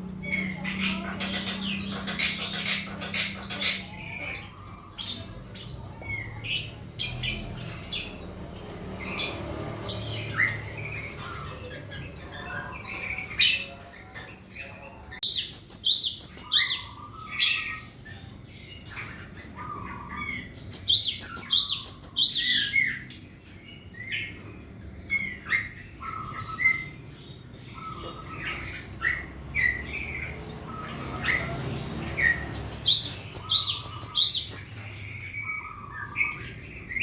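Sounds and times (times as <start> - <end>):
tit chirping and scolding: 0.0 - 18.0.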